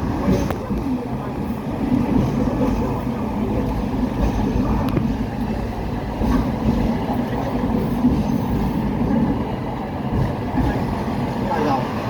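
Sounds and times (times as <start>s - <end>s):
tram rumbling along rails: 0.0s - 12.0s.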